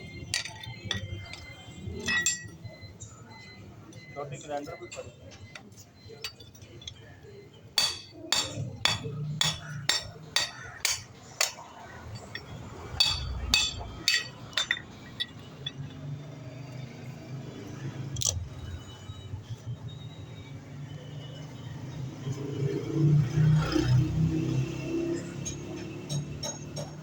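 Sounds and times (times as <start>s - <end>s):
hammer striking metal: 0.3s - 2.5s, 7.8s - 15.8s.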